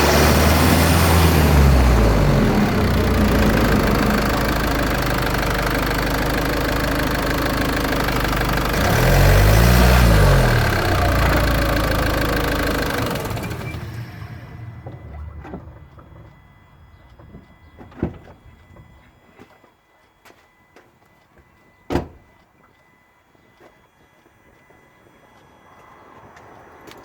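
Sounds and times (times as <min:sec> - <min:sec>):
low rising and falling tones: 0:00.0 - 0:17.7
road noise: 0:00.0 - 0:18.8, 0:25.2 - 0:27.0
drivetrain grinding: 0:00.0 - 0:19.0.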